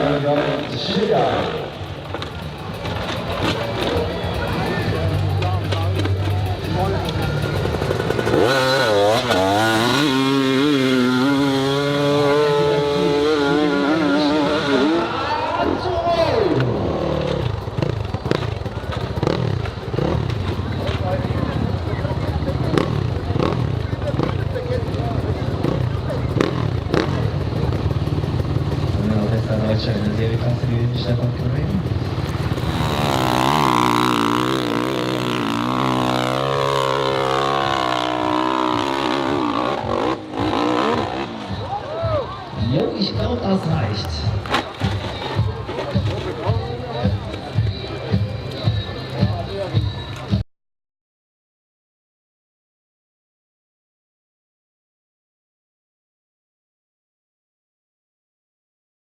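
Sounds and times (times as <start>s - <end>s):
dirt bike engine revving: 0.0s - 43.2s.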